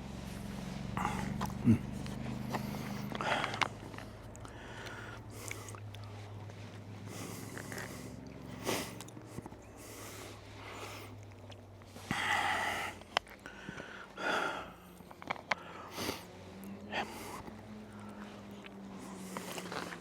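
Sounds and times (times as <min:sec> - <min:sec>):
breathing through the nose: 0:00.2 - 0:20.0
person chewing: 0:00.7 - 0:10.2.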